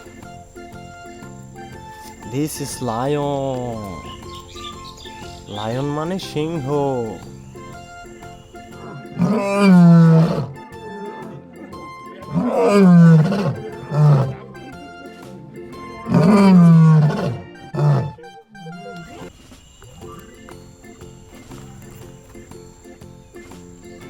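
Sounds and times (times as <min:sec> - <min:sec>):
lion grunting: 0:08.6 - 0:10.7, 0:12.2 - 0:14.5, 0:15.8 - 0:18.2
lion roaring: 0:08.8 - 0:10.6, 0:12.3 - 0:14.4, 0:15.9 - 0:18.2.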